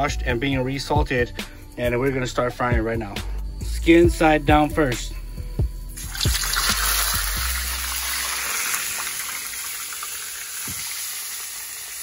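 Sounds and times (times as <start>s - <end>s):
meat sizzling in hot oil: 6.0s - 12.0s.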